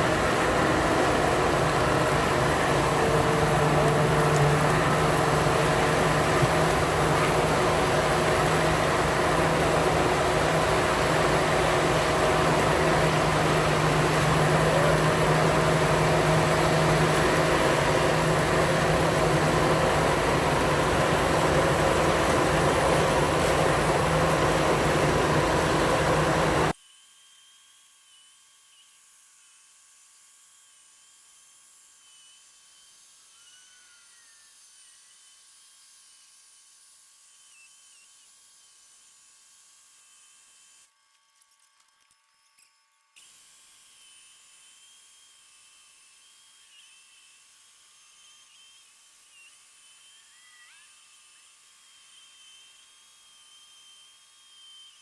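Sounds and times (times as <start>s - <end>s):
machine running with high whine: 0.0s - 26.8s.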